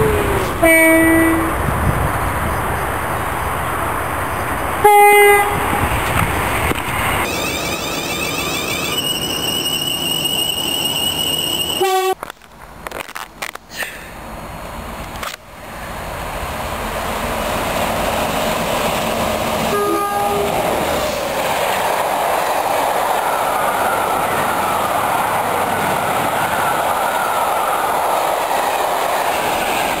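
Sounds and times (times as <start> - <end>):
train horn blast: 0.0 - 1.6, 4.8 - 5.8, 11.8 - 12.2, 19.7 - 20.7
train rushing past: 0.0 - 12.2, 15.6 - 30.0.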